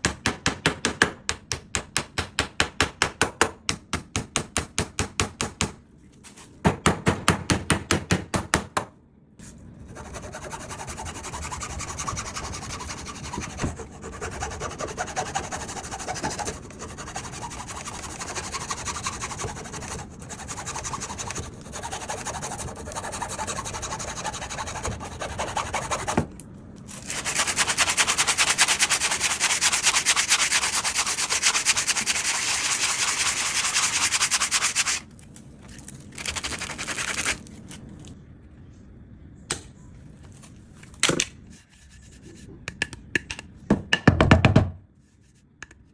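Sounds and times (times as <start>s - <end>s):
hand sanding wood: 9.9s - 26.2s, 26.9s - 35.0s.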